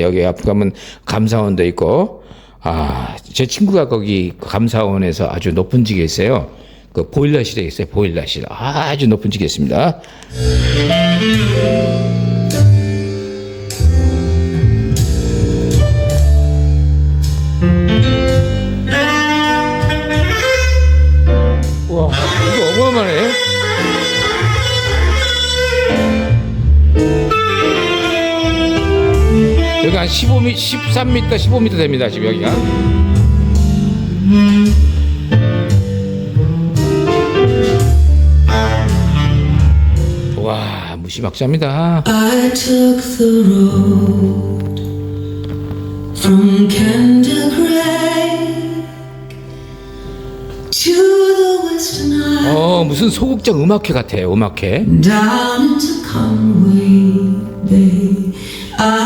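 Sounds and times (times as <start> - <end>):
instrumental music over speakers: 10.0 - 40.4, 42.0 - 54.2, 54.8 - 59.0.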